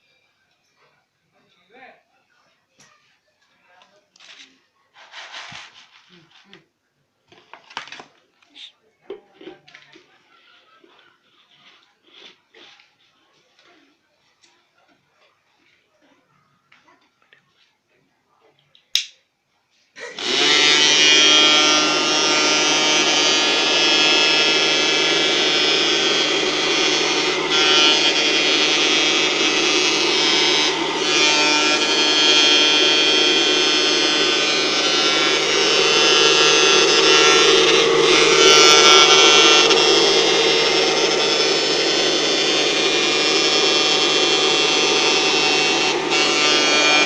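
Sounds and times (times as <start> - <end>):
vacuum cleaner motor whining: 20.0 - 47.0.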